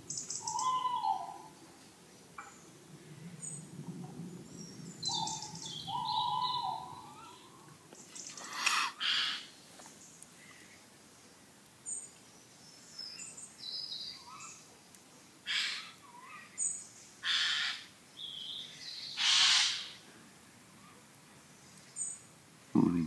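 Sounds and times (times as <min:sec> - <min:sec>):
small birds chirping and twittering: 0:00.0 - 0:23.0
harsh rasping bird calls: 0:05.0 - 0:07.6, 0:08.2 - 0:09.6, 0:15.4 - 0:20.0.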